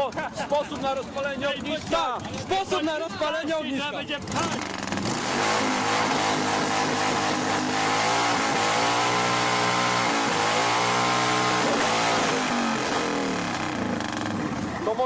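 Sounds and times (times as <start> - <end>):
car engine revving: 4.1 - 15.0.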